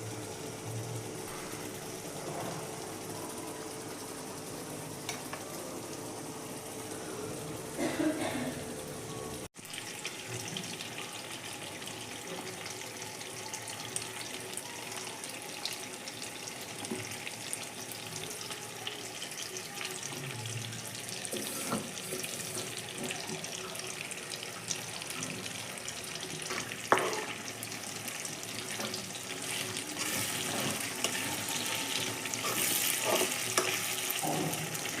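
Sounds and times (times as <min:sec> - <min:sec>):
prawns and onions sizzling in a pan: 0:09.6 - 0:35.0.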